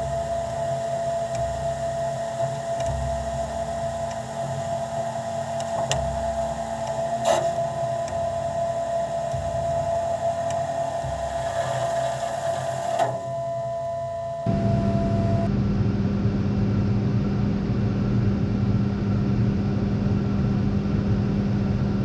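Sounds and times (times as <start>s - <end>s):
engine drone: 0.0s - 15.5s
steady high whine: 0.0s - 15.5s.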